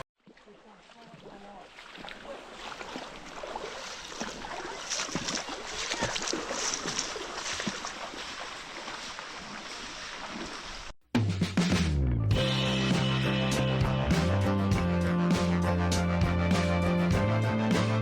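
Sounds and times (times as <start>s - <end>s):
water splashing and sloshing: 0.2s - 11.0s.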